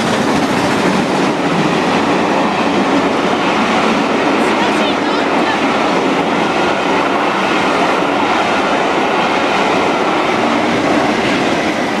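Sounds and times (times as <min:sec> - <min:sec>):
diesel locomotive passing: 0:00.0 - 0:12.0
train wheels rumbling and clattering: 0:00.0 - 0:12.0.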